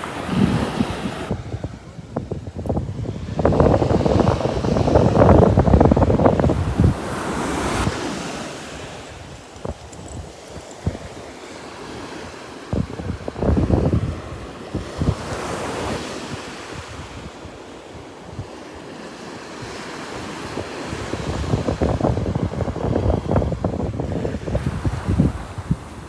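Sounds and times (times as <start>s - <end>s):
ocean surf breaking: 0.0s - 9.8s
wind buffeting microphone: 0.0s - 18.6s, 19.6s - 26.0s.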